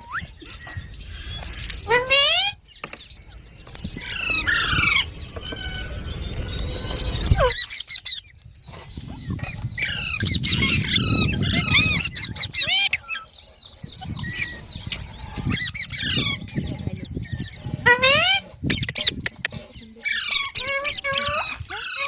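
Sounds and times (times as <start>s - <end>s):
parakeet squawking: 14.0s - 19.2s, 20.0s - 22.0s.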